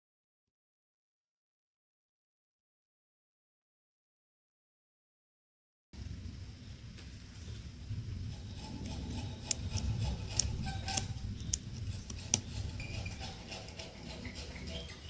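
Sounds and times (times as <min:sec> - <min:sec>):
sharp clicks and snips: 0:08.8 - 0:14.4.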